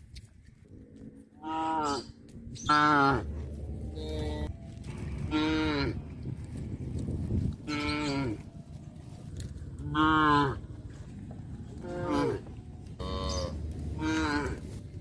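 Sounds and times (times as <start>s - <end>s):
low rumble: 0.4s - 15.0s
cows mooing: 1.3s - 6.0s, 7.6s - 8.6s, 9.7s - 11.0s, 11.7s - 14.8s.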